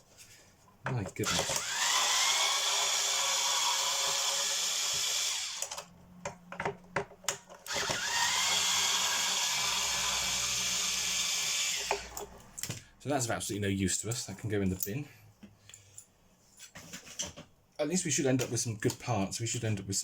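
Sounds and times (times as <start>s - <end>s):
cordless power drill whining: 1.2s - 5.9s, 7.7s - 12.2s.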